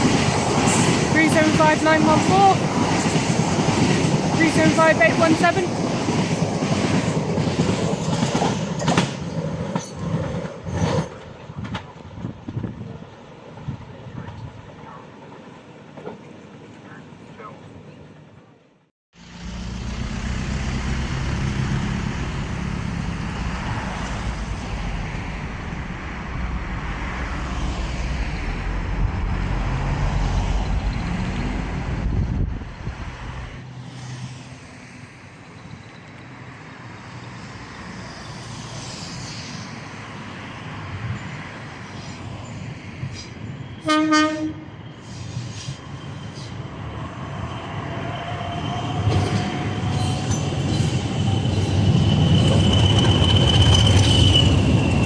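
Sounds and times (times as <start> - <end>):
train rumbling: 0.0 - 18.6, 19.2 - 55.0
rail noise: 0.0 - 55.0
rising motor whine: 19.2 - 32.5
train horn toot: 43.8 - 44.9.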